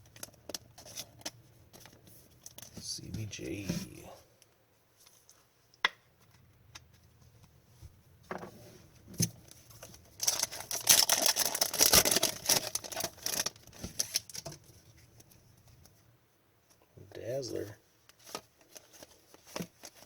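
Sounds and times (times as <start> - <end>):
foil wrapper crinkling: 9.6 - 14.7.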